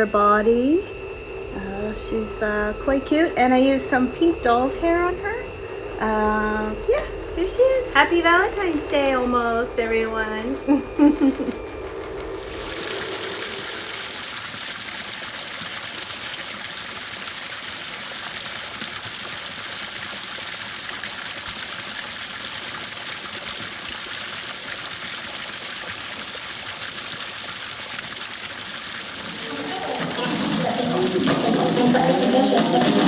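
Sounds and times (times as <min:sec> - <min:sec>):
steady rushing hiss: 0:11.5 - 0:15.2, 0:29.0 - 0:33.0.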